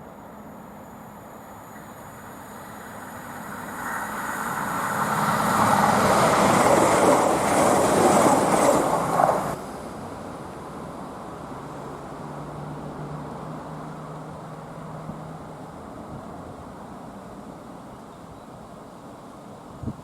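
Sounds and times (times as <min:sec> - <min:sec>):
train wheels rolling on rails: 0:00.0 - 0:09.6.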